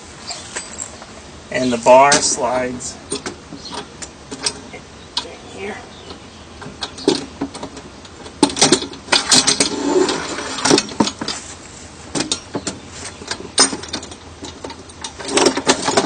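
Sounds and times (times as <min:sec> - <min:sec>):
metal clanking knocks: 0:06.6 - 0:11.4
metal scraping: 0:08.4 - 0:16.0.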